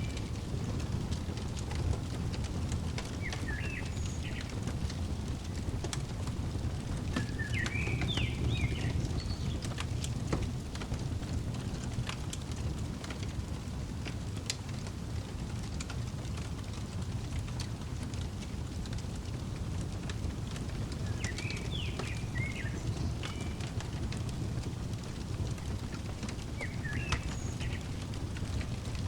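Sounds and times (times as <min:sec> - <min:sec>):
fire popping and snapping: 0:00.0 - 0:29.0
wood fire crackling: 0:00.0 - 0:29.0
songbird chirping: 0:03.0 - 0:05.8, 0:06.7 - 0:09.8, 0:20.6 - 0:29.0.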